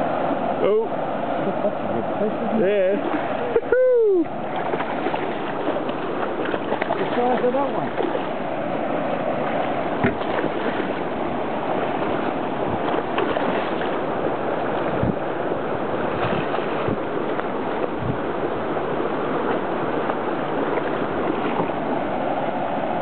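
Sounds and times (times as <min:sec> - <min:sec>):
water washing: 0:00.0 - 0:23.0
wind: 0:00.0 - 0:23.0
knocks on boat hull: 0:10.0 - 0:10.6.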